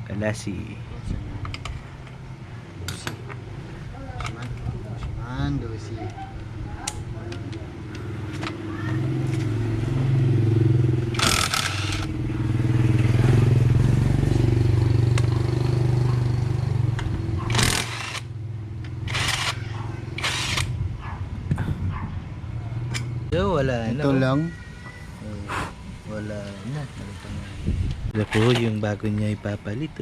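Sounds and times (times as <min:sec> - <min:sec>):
motorcycle engine running: 0:08.0 - 0:23.3.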